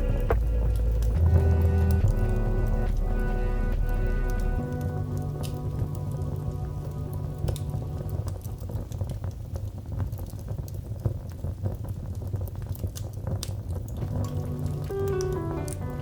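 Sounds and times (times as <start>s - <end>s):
low steady rumble: 0.0s - 10.5s
wood fire crackling: 0.0s - 16.0s.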